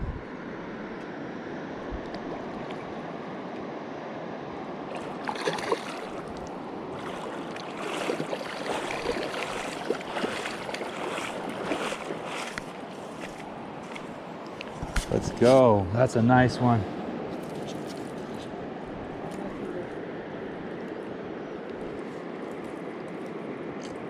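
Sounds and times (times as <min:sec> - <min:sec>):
mountain river rushing: 0:04.7 - 0:17.1
short splashy scuffing noises: 0:05.0 - 0:14.1, 0:14.7 - 0:15.6.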